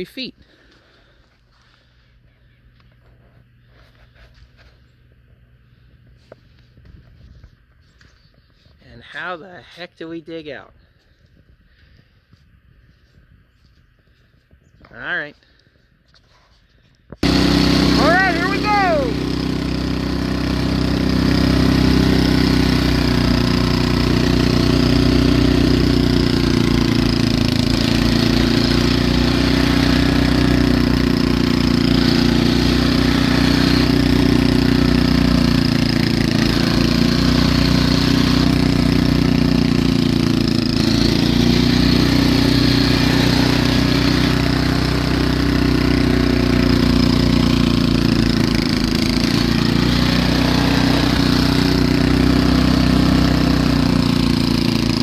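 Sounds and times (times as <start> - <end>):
snowblower engine running: 3.0 - 7.6, 17.2 - 55.0.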